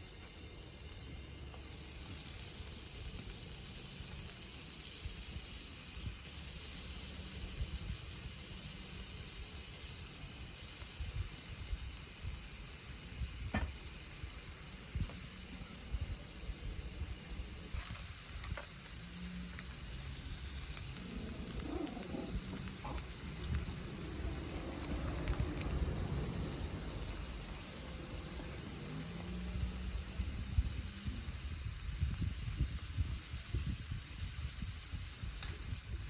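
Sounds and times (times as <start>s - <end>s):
food sizzling on a grill: 0.0s - 36.0s
sharp pops: 13.4s - 14.0s.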